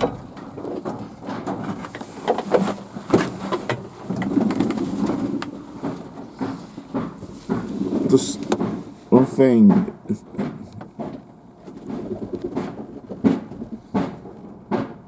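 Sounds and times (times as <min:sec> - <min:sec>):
pigeons cooing: 0:11.8 - 0:14.0.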